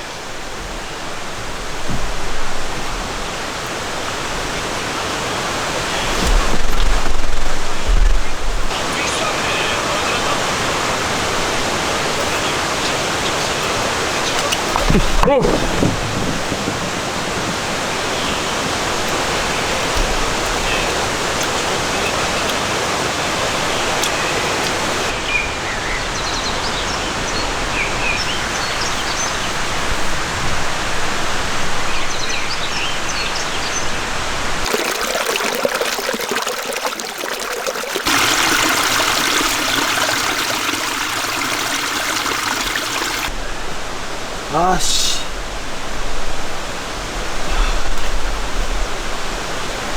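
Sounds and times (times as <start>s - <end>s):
rain falling: 0.0s - 25.2s, 26.6s - 49.9s.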